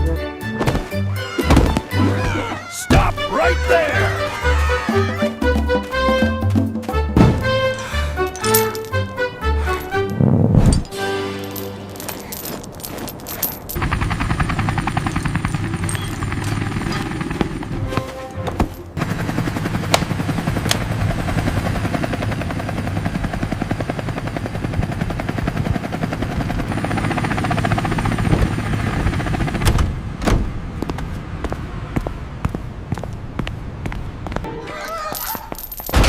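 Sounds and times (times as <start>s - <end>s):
background music: 0.0s - 13.5s, 34.5s - 35.0s
cartoon tractor engine chugging: 13.8s - 17.9s, 18.6s - 30.2s.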